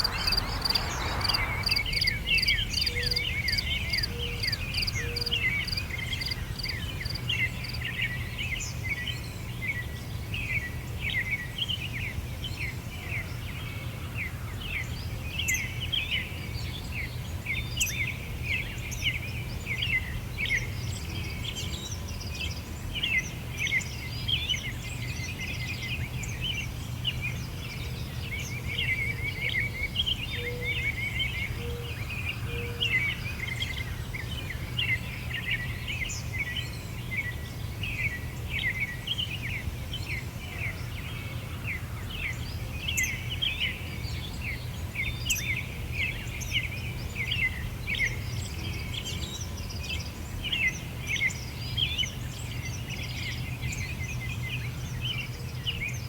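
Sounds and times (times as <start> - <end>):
steady low rumble: 0.0 - 3.9
songbirds chirping: 0.0 - 6.7.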